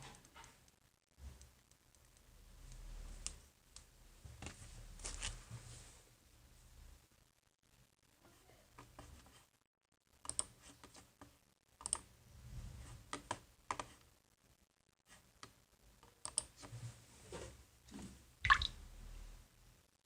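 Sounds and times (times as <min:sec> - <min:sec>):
keyboard and mouse clicking: 0:10.2 - 0:11.0, 0:11.8 - 0:12.1, 0:15.4 - 0:16.5.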